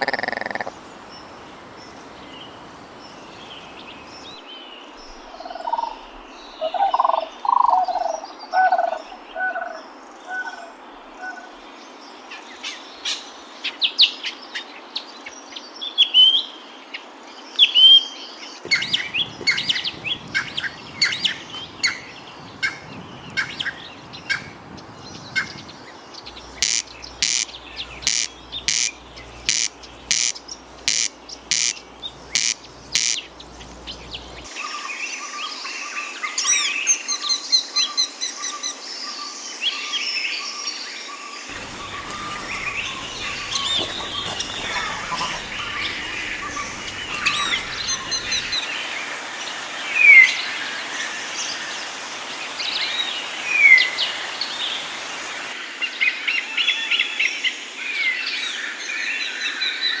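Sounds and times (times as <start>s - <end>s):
repeated loud bird call: 0.0s - 11.6s, 18.6s - 34.6s, 41.5s - 55.6s
birdsong chorus: 0.0s - 13.7s, 17.6s - 36.8s, 39.0s - 55.6s.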